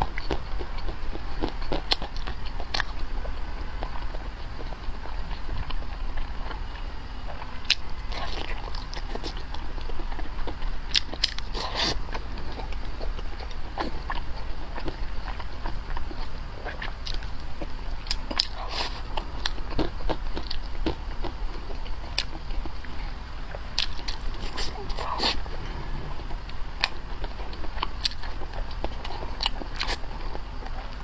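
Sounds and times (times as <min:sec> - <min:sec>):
biting and chewing: 0:00.0 - 0:31.0
food crunches: 0:07.6 - 0:23.0, 0:23.6 - 0:25.5, 0:26.8 - 0:31.0.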